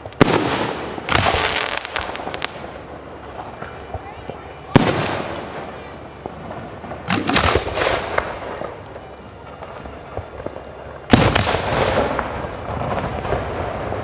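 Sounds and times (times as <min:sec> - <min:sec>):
loud firework bang: 0:00.0 - 0:02.8, 0:04.7 - 0:08.8, 0:10.1 - 0:14.0
firework trailing crackle: 0:00.0 - 0:14.0
fireworks cracks and pops: 0:00.0 - 0:14.0.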